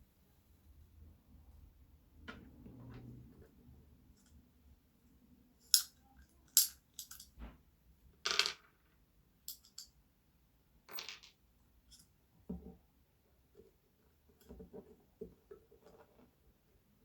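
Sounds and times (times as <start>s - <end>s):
clicks of small parts and tools: 5.7s - 7.3s, 9.5s - 9.9s.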